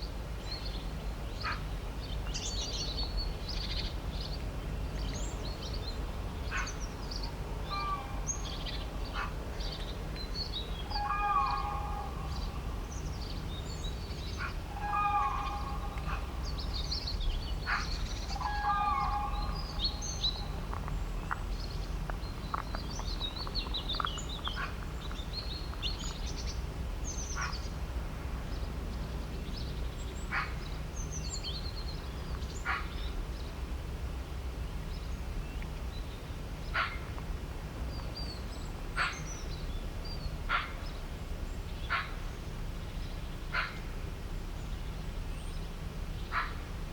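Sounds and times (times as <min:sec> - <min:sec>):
steady low rumble: 0:00.0 - 0:46.9
small birds chirping and trilling: 0:00.4 - 0:27.8
lower fuller bird calls: 0:06.4 - 0:27.7.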